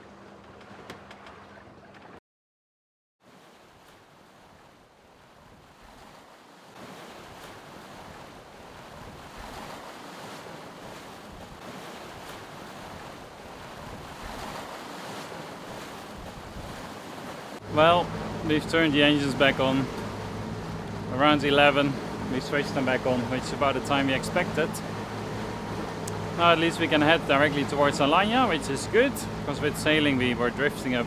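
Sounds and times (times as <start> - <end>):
sea water and waves rushing: 0.0 - 2.2, 3.2 - 31.0
wind buffeting microphone: 10.8 - 14.7, 15.6 - 17.3.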